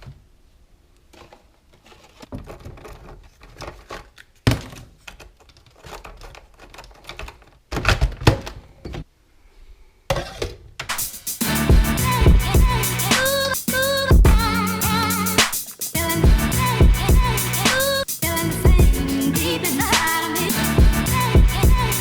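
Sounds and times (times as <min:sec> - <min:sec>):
music with a beat: 0:10.9 - 0:22.0.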